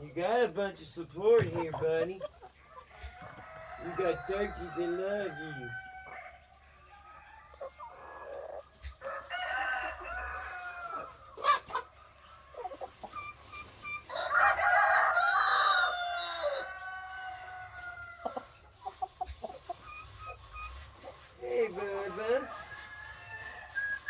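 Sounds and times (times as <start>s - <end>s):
roosters crowing: 2.7s - 12.0s, 14.0s - 18.6s, 21.7s - 24.0s.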